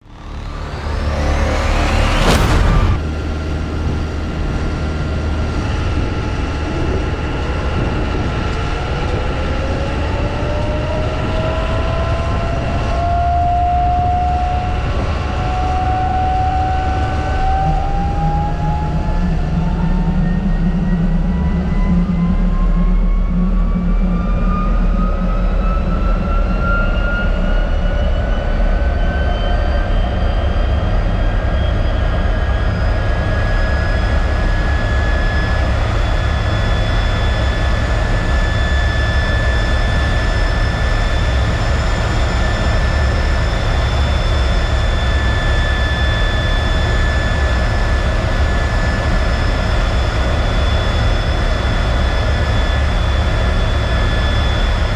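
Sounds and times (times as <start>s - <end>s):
jet engine spooling up: 0.0s - 4.0s, 31.6s - 54.9s.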